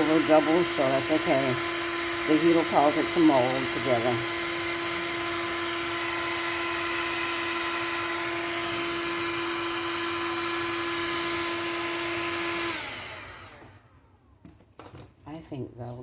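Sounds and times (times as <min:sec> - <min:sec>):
heat gun fan whining: 0:00.0 - 0:14.6.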